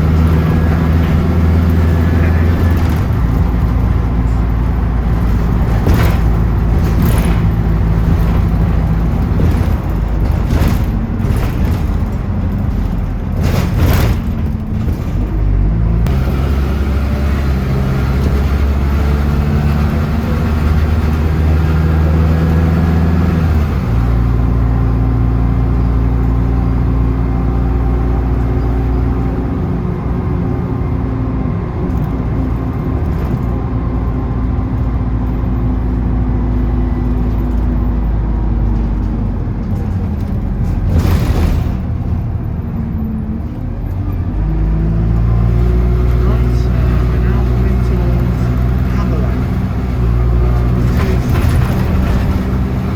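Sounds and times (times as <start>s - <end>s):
bus engine: 0.0s - 52.9s
road noise: 0.0s - 52.9s.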